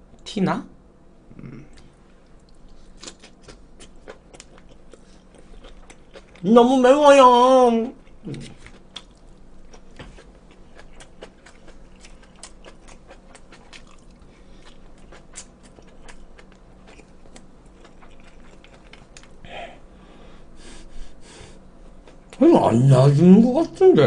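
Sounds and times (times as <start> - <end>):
chewing and biting food: 1.7 - 6.4, 8.0 - 19.4.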